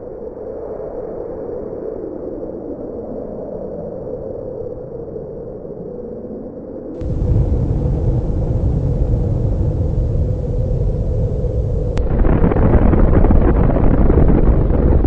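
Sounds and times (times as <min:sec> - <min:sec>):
explosion rumble: 0:07.0 - 0:15.0.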